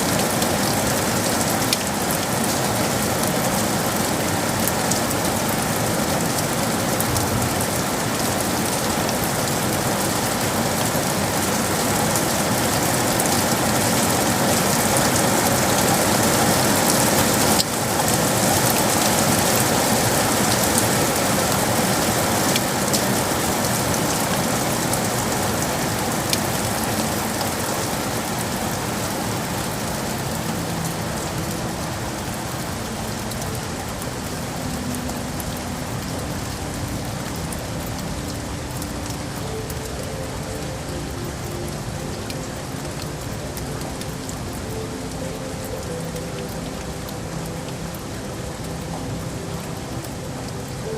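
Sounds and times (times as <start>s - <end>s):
heavy rain hissing: 0.0s - 50.9s
rain drops ticking: 0.0s - 50.9s.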